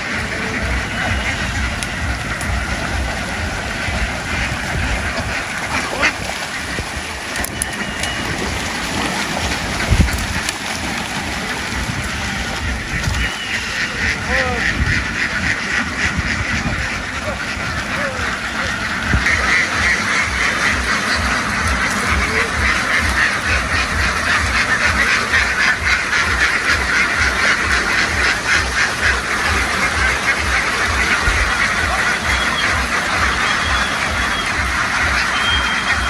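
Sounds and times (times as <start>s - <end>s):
ducks quacking: 0.0s - 36.0s
low even thumping: 0.0s - 36.0s.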